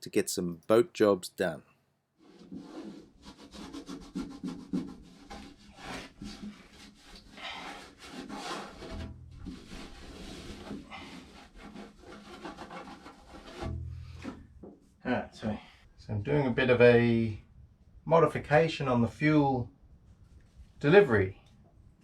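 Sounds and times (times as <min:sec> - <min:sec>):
hand tool scraping: 0:02.2 - 0:14.4.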